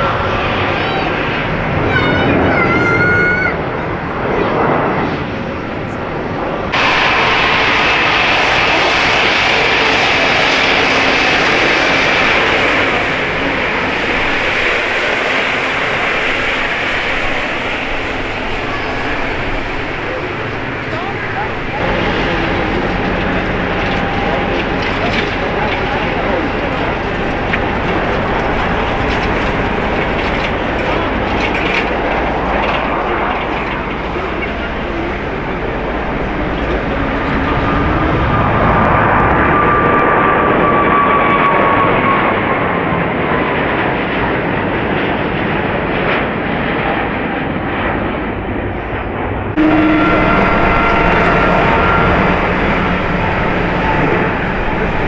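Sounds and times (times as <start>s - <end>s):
jet engines running at high power: 0.0s - 55.0s.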